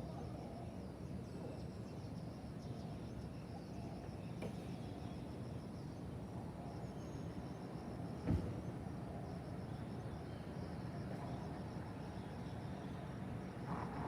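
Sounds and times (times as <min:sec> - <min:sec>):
distant traffic rumble: 0:13.5 - 0:14.0.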